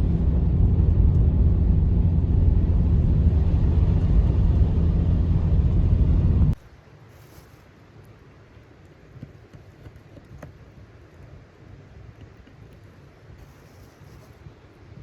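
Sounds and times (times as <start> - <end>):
blizzard wind rumble: 0.0 - 6.6.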